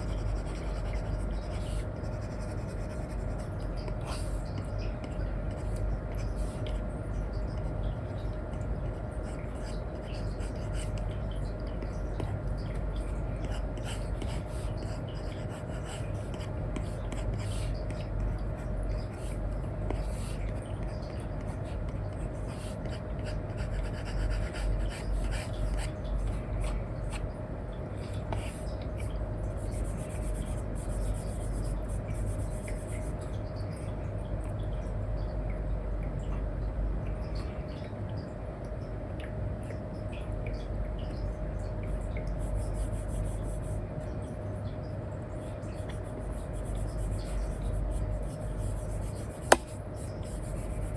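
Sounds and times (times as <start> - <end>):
steady low hum: 0.0 - 50.9
stylus scratching on screen: 28.3 - 33.2, 42.4 - 43.8, 45.5 - 50.9
stylus tapping: 48.7 - 50.9.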